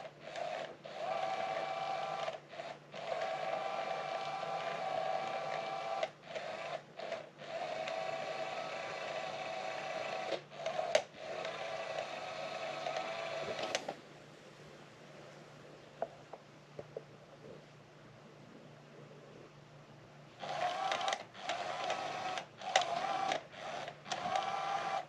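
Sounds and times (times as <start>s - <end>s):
cat toy motor whirring: 0.0s - 14.0s, 20.4s - 25.0s.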